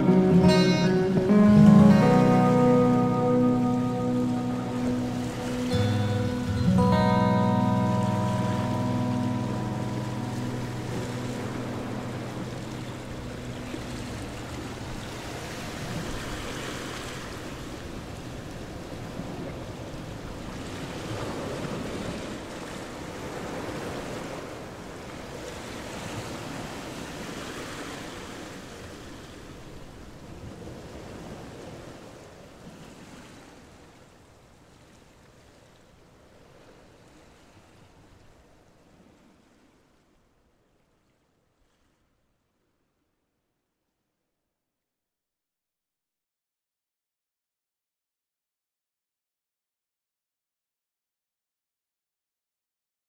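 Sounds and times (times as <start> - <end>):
guitar music: 0.0 - 15.8.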